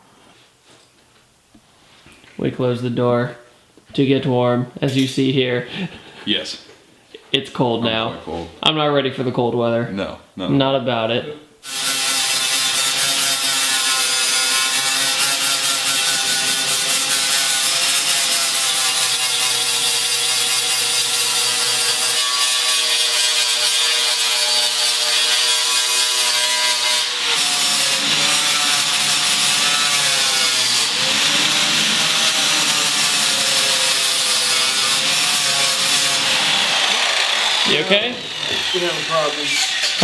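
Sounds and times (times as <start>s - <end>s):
power tool cutting sheet metal: 11.6s - 40.0s.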